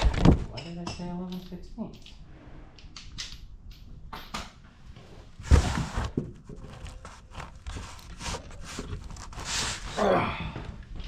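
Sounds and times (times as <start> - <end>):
tools clicking and knocking: 0.5 - 2.2, 2.8 - 4.6.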